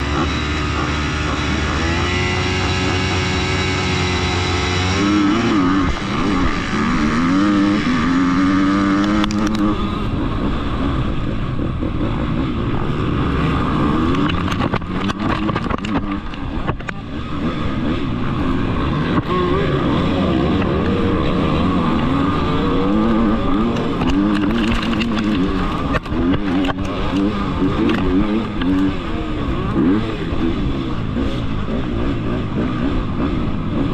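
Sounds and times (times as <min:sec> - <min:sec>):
two-stroke dirt bike engines revving: 0:00.0 - 0:33.9
dirt hitting helmet camera: 0:23.4 - 0:28.8.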